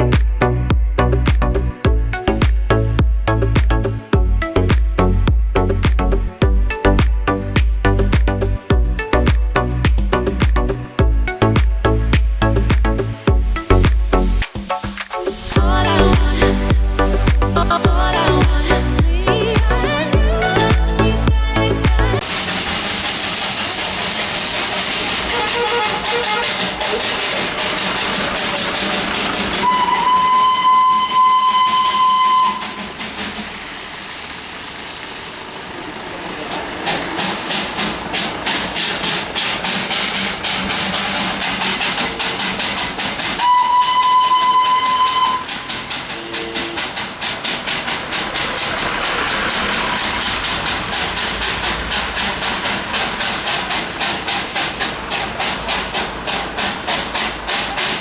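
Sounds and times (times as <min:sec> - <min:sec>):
locomotive exhaust chuffing: 0:00.0 - 0:58.0
hiss of steam: 0:22.2 - 0:29.9, 0:31.8 - 0:58.0
steam locomotive whistle blasts: 0:25.2 - 0:27.4, 0:29.6 - 0:33.0, 0:43.4 - 0:47.1.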